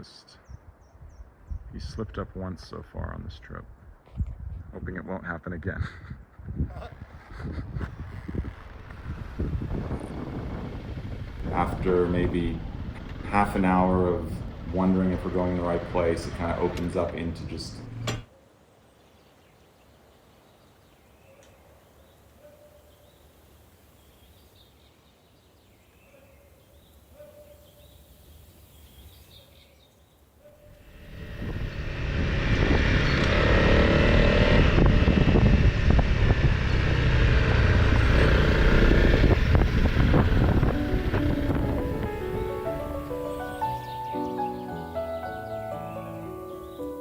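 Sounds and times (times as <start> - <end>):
wind rushing over microphone: 0.4 - 2.4, 3.1 - 5.0, 5.8 - 18.2, 30.7 - 43.7
motorcycle engine running: 7.2 - 18.2, 30.7 - 44.0.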